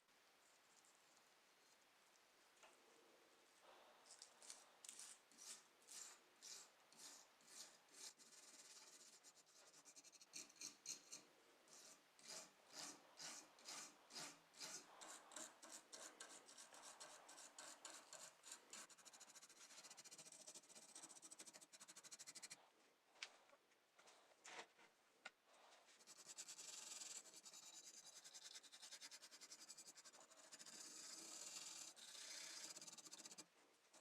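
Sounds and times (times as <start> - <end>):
rhythmic hand sanding strokes: 26.0 - 33.4.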